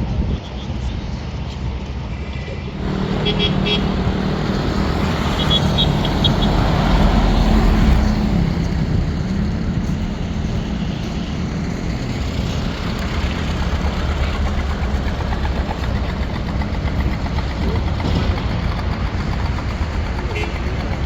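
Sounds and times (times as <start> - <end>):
road noise: 0.0 - 21.0
vehicle engine running: 2.6 - 21.0.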